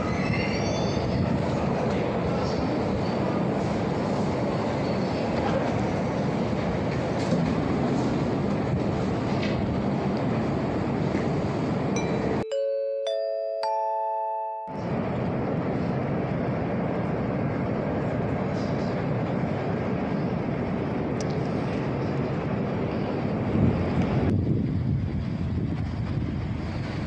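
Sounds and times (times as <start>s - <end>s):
train rumbling: 0.0s - 12.4s, 14.7s - 27.0s
two-note electronic chime: 12.0s - 15.0s.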